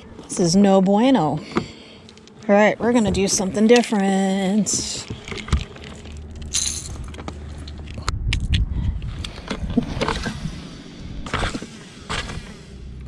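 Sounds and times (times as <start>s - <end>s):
low steady rumble: 0.0s - 13.0s
small hard items clinking: 4.8s - 8.0s.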